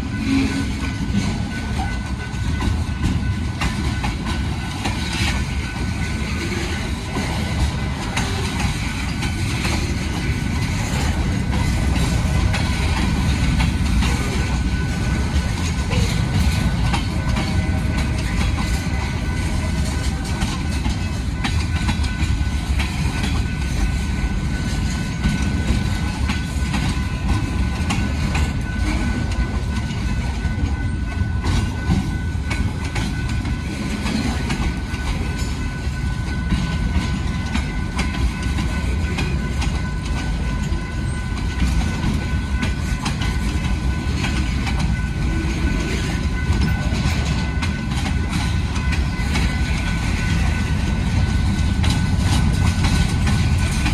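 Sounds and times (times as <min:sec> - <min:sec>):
train rumbling past: 0:00.0 - 0:53.9.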